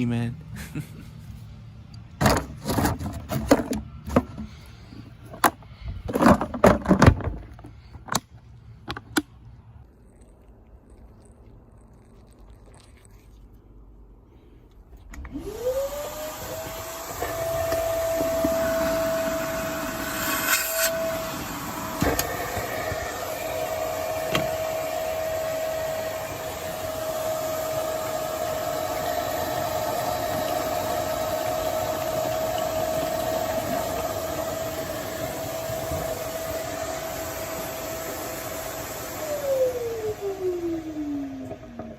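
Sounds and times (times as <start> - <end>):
vacuum pump motor whine: 15.0 - 41.9.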